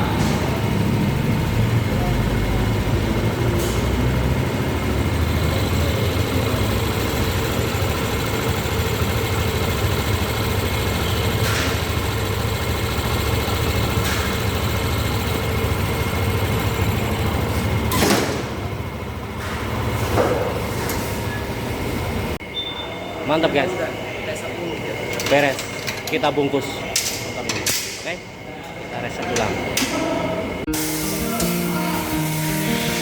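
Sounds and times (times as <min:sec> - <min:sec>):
scooter engine idling: 0:00.0 - 0:25.2.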